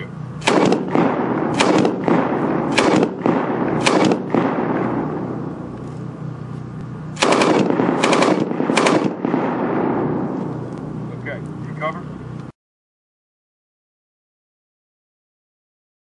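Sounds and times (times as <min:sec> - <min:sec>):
gunshots with echo: 0:00.4 - 0:05.4, 0:07.2 - 0:10.7.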